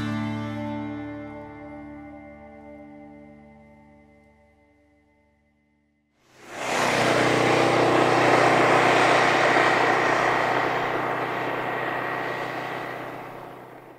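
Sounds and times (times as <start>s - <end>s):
scooter riding past: 6.3s - 13.9s.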